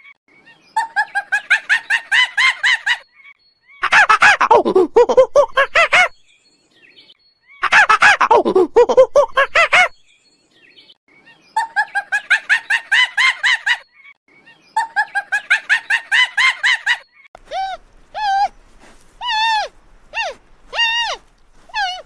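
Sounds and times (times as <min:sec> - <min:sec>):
rising and falling animal calls: 0:15.7 - 0:22.0.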